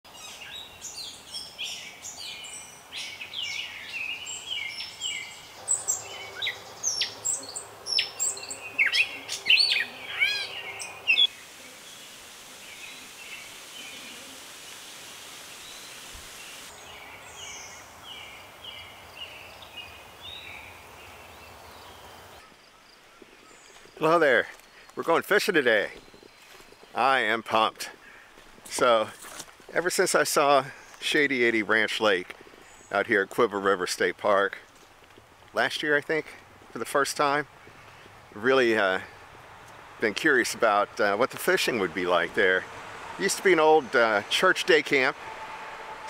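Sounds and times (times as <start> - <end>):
wild birds chirping and whistling: 0.1 - 25.1
even hiss: 4.8 - 22.4.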